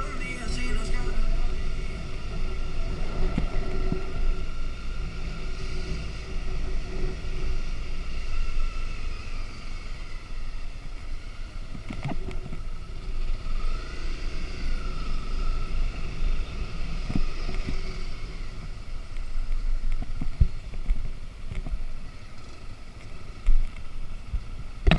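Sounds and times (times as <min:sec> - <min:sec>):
motorcycle engine running: 0:00.7 - 0:24.9.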